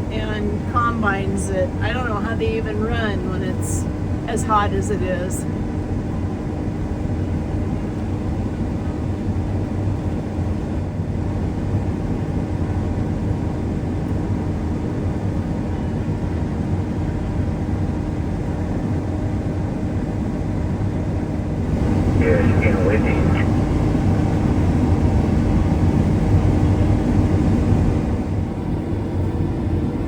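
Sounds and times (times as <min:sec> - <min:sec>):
steady hum: 0:00.0 - 0:05.5, 0:21.6 - 0:26.6
harvest machinery engine drone: 0:00.0 - 0:05.8, 0:21.6 - 0:30.0.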